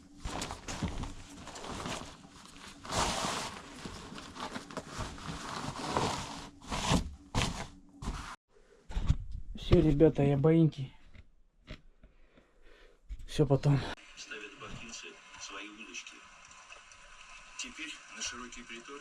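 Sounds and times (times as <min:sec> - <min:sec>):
rustling handling noises: 0:00.0 - 0:08.4.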